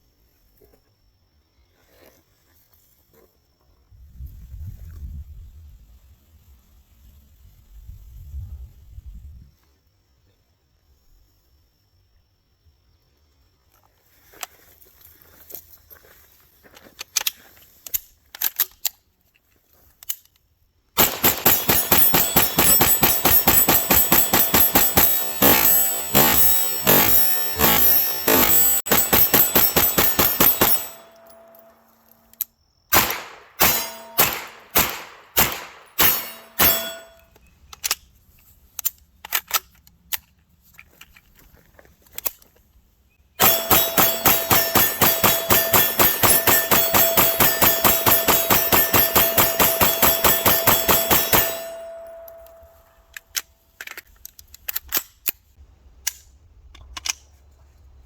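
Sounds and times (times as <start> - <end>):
pistol shots: 21.0 - 31.7, 32.9 - 37.2, 43.4 - 52.7
metallic ring of struck steel: 21.4 - 32.1, 33.0 - 37.3, 43.4 - 53.0.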